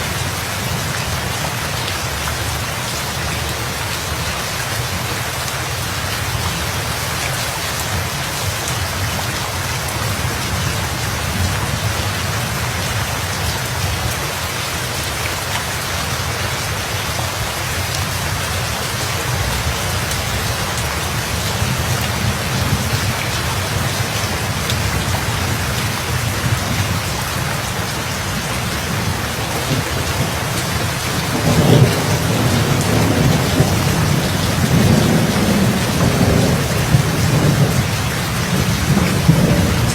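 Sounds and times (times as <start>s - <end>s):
steady rain falling: 0.0s - 39.9s
thunder rumble: 19.3s - 39.9s.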